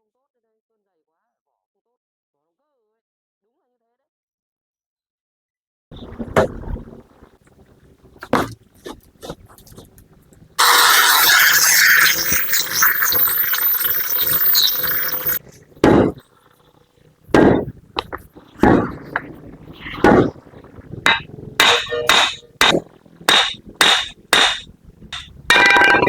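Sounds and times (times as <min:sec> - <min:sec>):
power tool whining on metal: 0:10.6 - 0:15.4.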